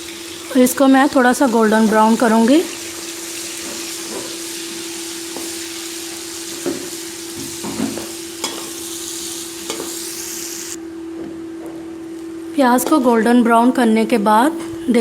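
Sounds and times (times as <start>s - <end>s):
onions sizzling in hot oil: 0.0s - 10.8s.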